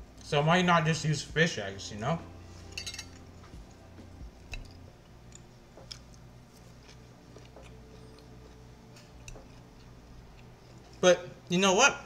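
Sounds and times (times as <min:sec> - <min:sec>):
person chewing food: 0:03.2 - 0:11.0.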